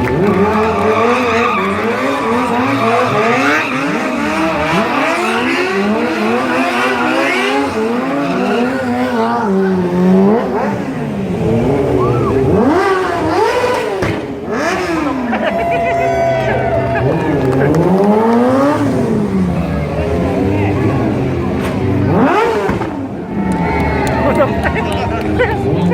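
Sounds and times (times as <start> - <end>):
motorcycle engines revving: 0.0 - 25.9.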